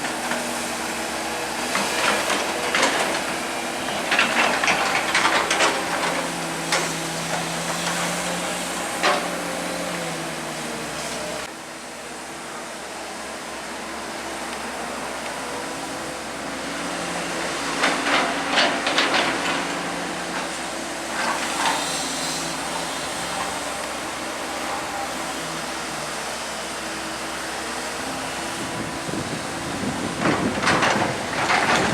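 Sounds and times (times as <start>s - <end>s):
excavator engine running: 0.0s - 31.9s.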